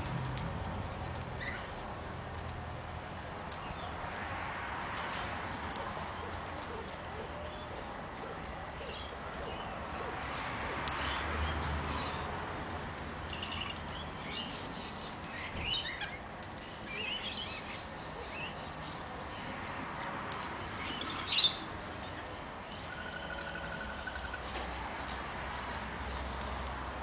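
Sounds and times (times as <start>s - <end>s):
birds chirping and squawking: 13.3s - 19.6s.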